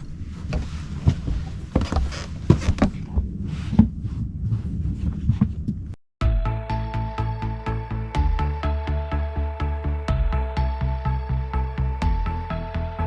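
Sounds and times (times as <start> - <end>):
soft thumps and scuffs: 0.3 - 5.9
steady low rumble: 2.8 - 13.0
music: 6.2 - 13.0.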